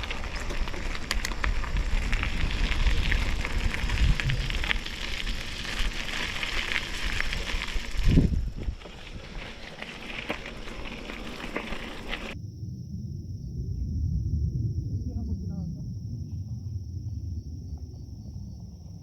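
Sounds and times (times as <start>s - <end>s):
bike tyres rolling over gravel: 0.0s - 12.4s.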